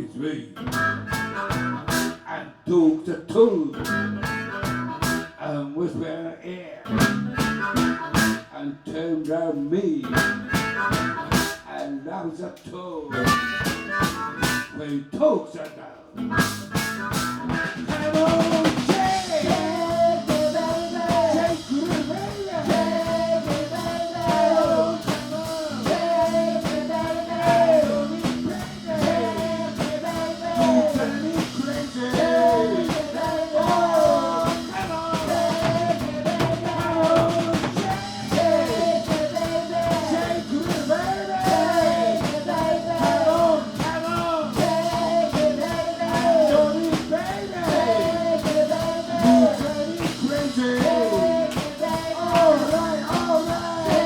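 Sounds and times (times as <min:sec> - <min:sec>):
blues band playing: 0:00.6 - 0:02.2, 0:03.8 - 0:05.4, 0:06.9 - 0:08.6, 0:10.0 - 0:11.7, 0:13.1 - 0:14.9, 0:16.2 - 0:54.0
electric guitar lead with bending notes: 0:00.6 - 0:02.2, 0:03.8 - 0:05.3, 0:06.9 - 0:08.4, 0:16.2 - 0:54.0.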